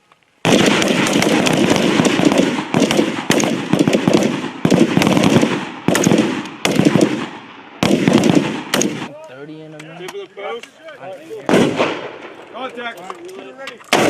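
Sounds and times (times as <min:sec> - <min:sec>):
gunshots with echo: 0:00.4 - 0:09.1, 0:11.5 - 0:12.4.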